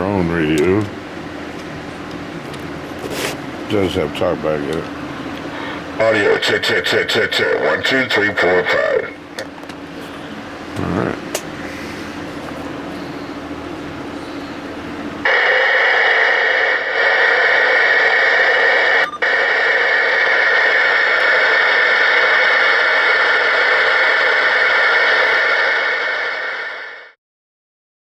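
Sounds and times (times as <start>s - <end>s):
radio static hiss: 5.5s - 9.3s, 10.7s - 11.8s, 15.2s - 27.2s.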